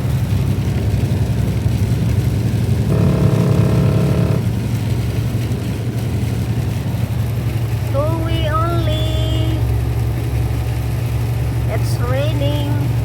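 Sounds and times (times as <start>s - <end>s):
truck engine and road noise: 0.0s - 13.0s
multi-pitch tone: 2.9s - 4.5s.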